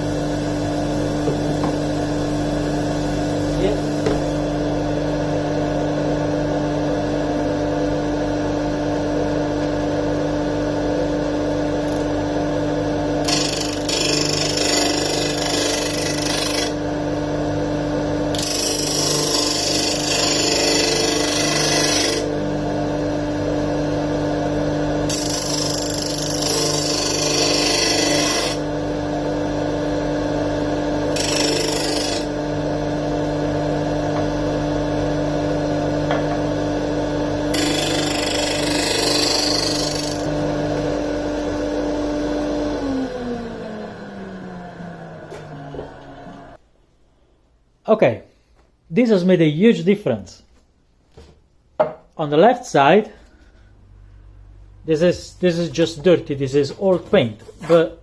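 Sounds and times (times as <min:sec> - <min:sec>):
disc sander motor running: 0:18.3 - 0:23.6, 0:24.9 - 0:28.8, 0:29.4 - 0:46.6.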